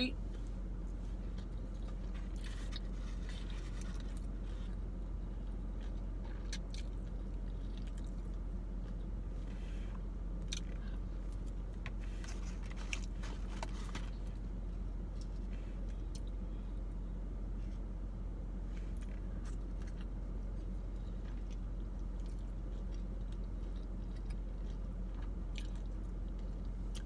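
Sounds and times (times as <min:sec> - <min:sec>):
steady low hum: 0:00.0 - 0:27.0
person chewing: 0:00.9 - 0:14.5, 0:18.9 - 0:27.0.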